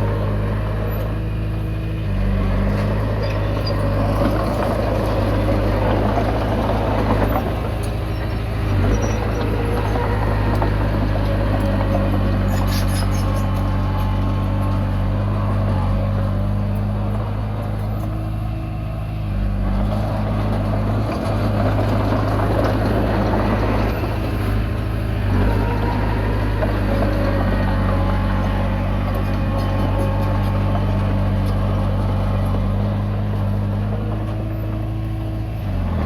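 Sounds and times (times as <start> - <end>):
bulldozer diesel engine running: 0.0 - 36.0.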